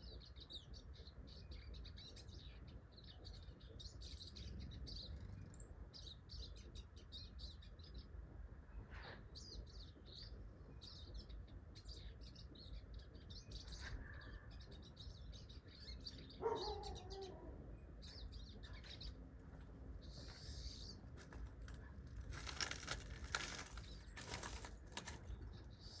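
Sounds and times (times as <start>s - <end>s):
small birds chirping: 0.0s - 26.0s
rustling fluttering noise: 20.3s - 25.7s.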